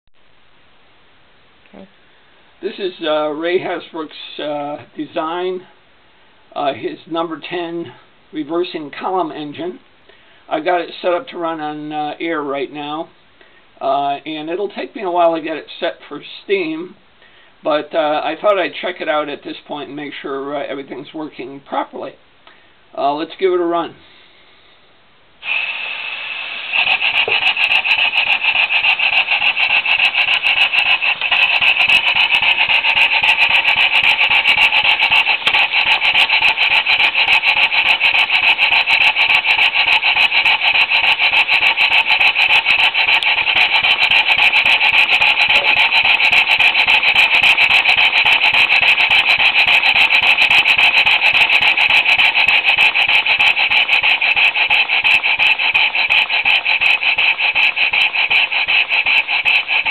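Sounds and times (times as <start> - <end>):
model steam engine exhaust puffs: 1.7 - 59.9
air hissing: 24.0 - 59.9.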